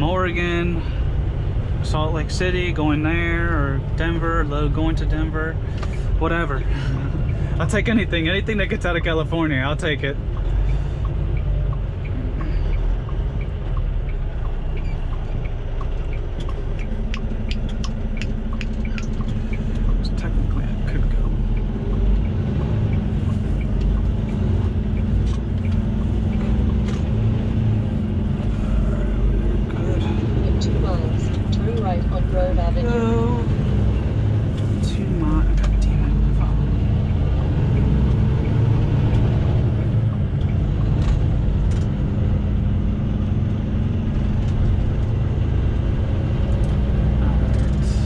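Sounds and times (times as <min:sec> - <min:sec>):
diesel truck engine droning: 0:00.0 - 0:48.0.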